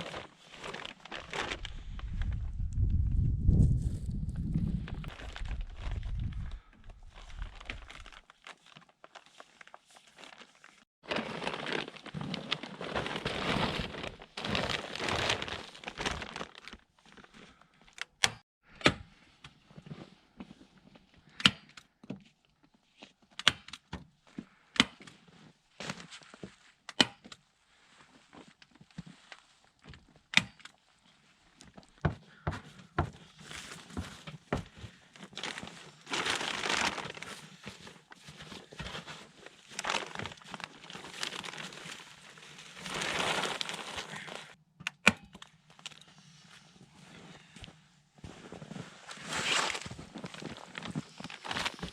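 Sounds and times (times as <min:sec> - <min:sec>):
dense crinkling rustle: 0:00.0 - 0:03.0, 0:03.7 - 0:17.8, 0:24.3 - 0:26.9, 0:27.5 - 0:32.0, 0:33.2 - 0:44.6, 0:45.8 - 0:51.9.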